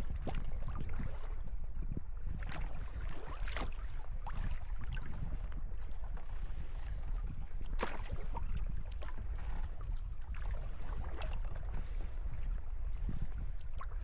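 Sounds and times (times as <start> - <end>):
wind on microphone: 0.0 - 14.0
water splashing off paddle: 2.4 - 4.5.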